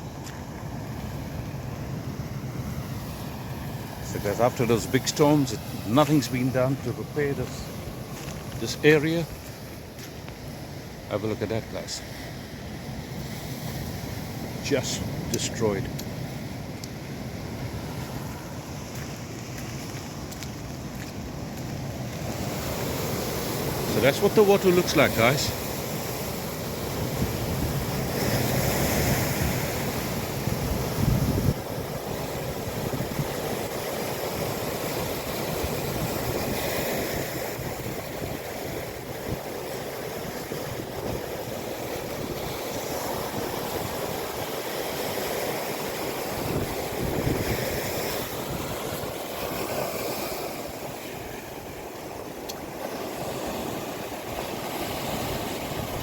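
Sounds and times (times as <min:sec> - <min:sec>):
sea surf washing: 0:00.0 - 0:56.0
wind buffeting microphone: 0:25.8 - 0:52.8.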